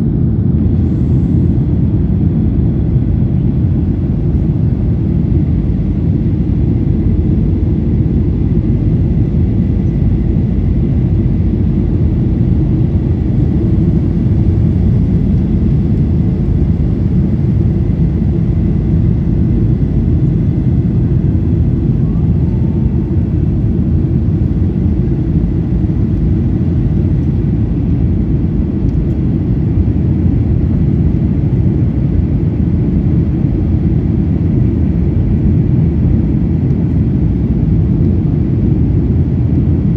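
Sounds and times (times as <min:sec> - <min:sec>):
jet engine roar inside cabin: 0:00.0 - 0:39.9
faint high whine: 0:00.6 - 0:27.4.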